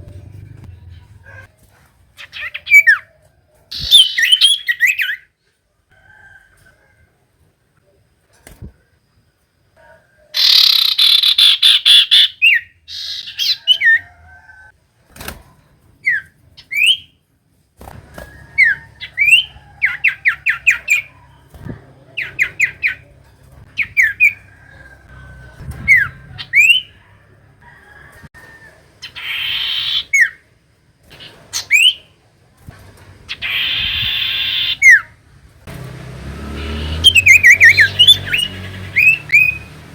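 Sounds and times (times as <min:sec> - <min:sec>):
bird harsh chattering: 0:10.4 - 0:13.8, 0:29.0 - 0:30.3, 0:33.3 - 0:35.1.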